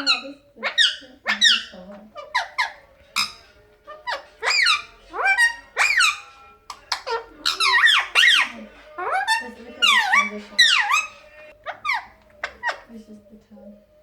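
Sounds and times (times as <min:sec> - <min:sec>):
parakeet squawking: 0:00.0 - 0:13.0.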